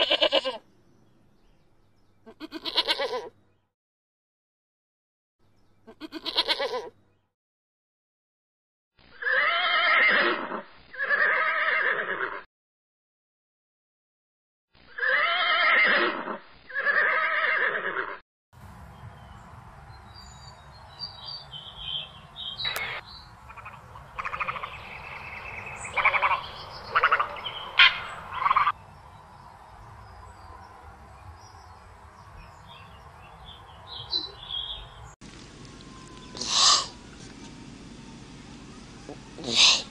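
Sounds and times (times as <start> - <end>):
horse neighing: 9.2 - 12.5, 15.0 - 18.2, 39.4 - 39.9
bird calls and chirps: 18.9 - 35.2.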